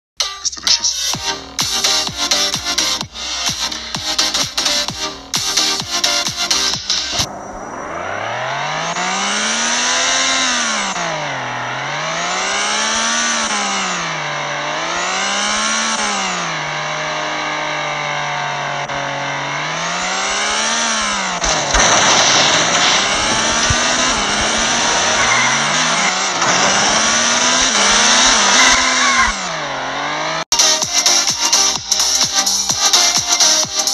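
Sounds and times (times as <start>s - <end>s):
car engine revving: 0.8s - 33.9s
sharp impact noises: 1.1s - 11.4s, 18.3s - 30.8s
tyre squeals and skids: 6.1s - 30.4s.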